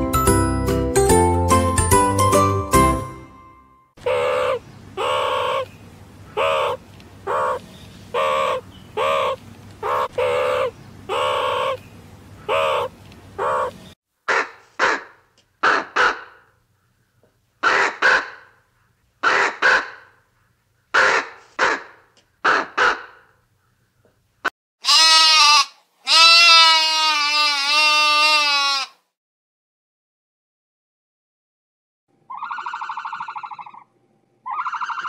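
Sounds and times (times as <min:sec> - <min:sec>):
loud pitched bird calls: 0:04.0 - 0:15.0, 0:32.3 - 0:35.0.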